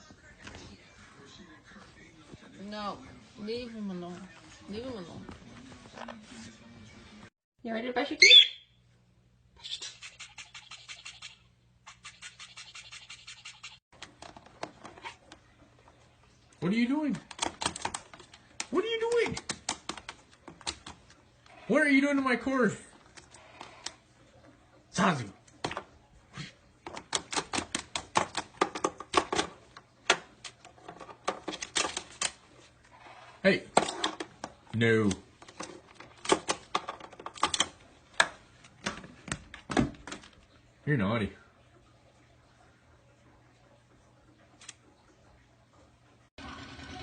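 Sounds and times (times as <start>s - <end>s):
toothbrush scrubbing: 9.7s - 13.8s
bird beak pecking and gnawing: 17.2s - 21.6s.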